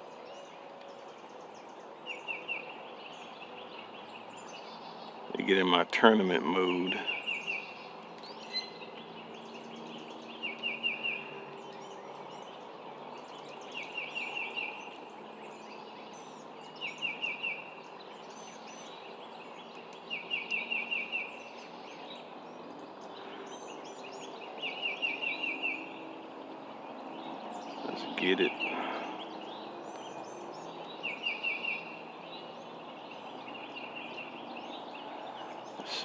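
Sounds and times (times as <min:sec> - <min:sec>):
songbird trilling: 0:06.4 - 0:12.6, 0:26.9 - 0:36.0.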